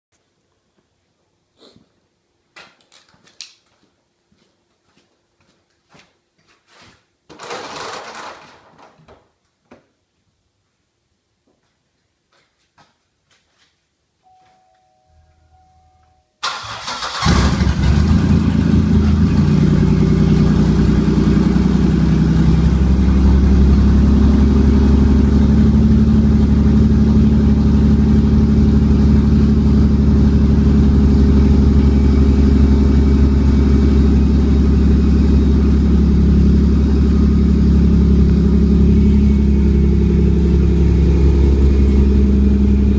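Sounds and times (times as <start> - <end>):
faint tone: 14.2 - 16.4
car engine cranking and idling: 16.4 - 42.9.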